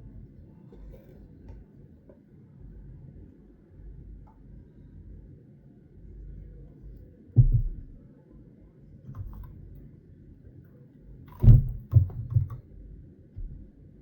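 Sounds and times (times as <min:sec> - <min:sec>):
dull knocks: 0:07.4 - 0:08.0, 0:11.3 - 0:12.6, 0:13.4 - 0:13.7.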